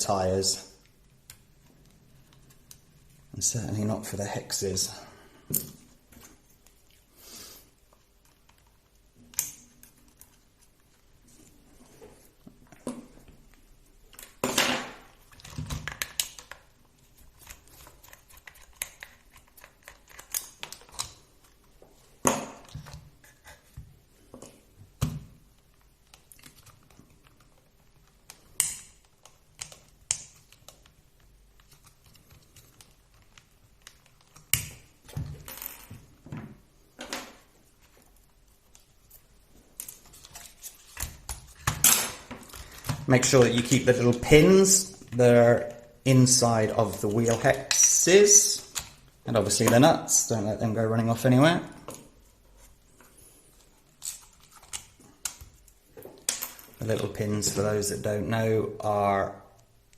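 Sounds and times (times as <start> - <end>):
small parts clicking and knocking: 14.1 - 36.4.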